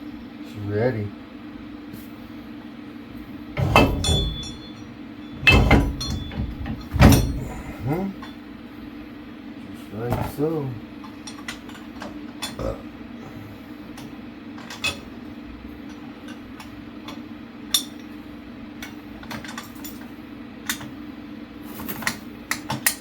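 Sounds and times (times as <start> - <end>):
steady low hum: 0.0 - 23.0
metal tools clinking: 3.6 - 8.4.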